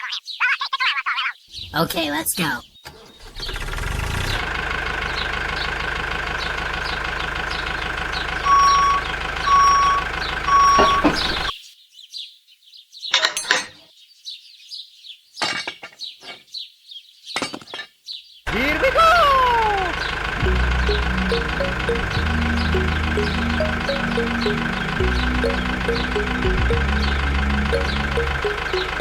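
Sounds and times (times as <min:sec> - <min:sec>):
tractor engine running: 0:03.2 - 0:11.5, 0:18.5 - 0:29.0
short beeps: 0:08.5 - 0:11.5.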